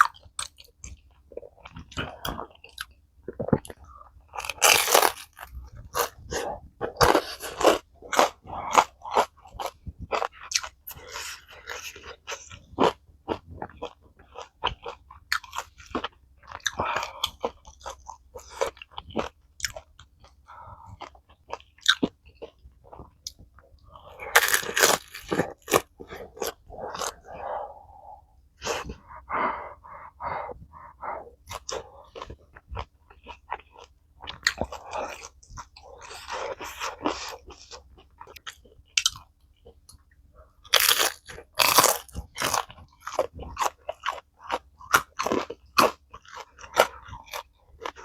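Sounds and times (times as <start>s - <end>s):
chewing: 0.0s - 27.8s, 28.6s - 48.0s
crunchy bites: 24.1s - 27.2s.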